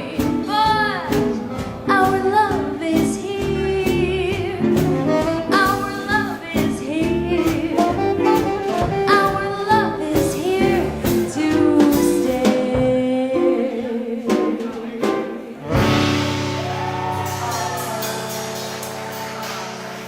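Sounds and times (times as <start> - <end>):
woman singing: 0.0 - 16.4
swing band playing: 0.0 - 20.0
saxophone: 3.6 - 12.5.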